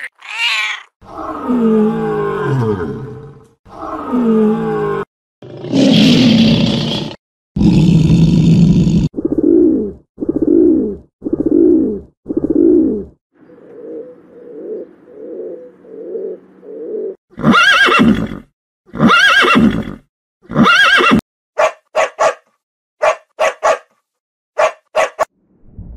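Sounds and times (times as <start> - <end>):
lion roaring: 1.0 - 9.1
pigeon cooing: 9.2 - 17.2
horse neighing: 17.4 - 21.2.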